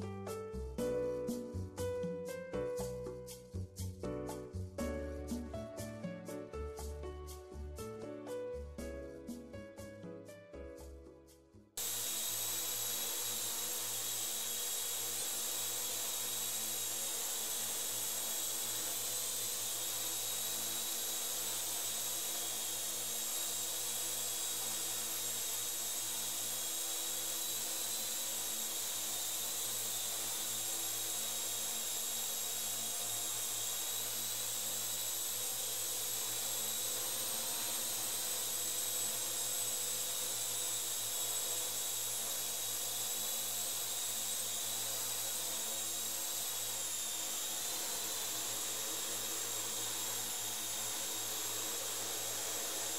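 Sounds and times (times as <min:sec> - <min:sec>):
quadcopter rotors whining: 0:11.8 - 0:52.9.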